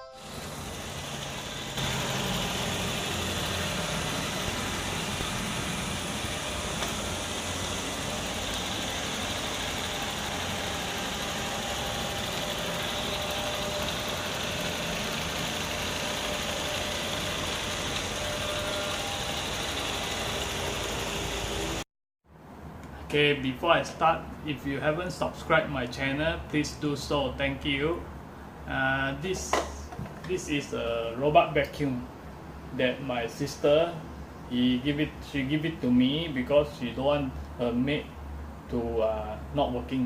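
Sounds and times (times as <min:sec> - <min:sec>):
robot vacuum cleaner whirring: 0:00.2 - 0:21.8.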